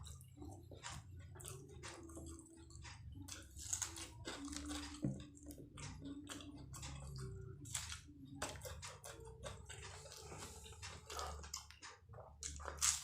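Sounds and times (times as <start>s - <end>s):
person chewing crunchy pastry: 0.0s - 13.0s.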